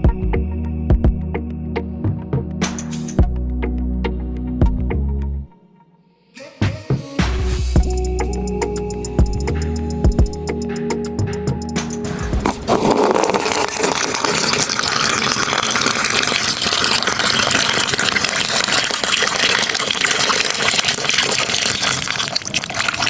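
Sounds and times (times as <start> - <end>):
water gushing and pouring: 12.1 - 23.0.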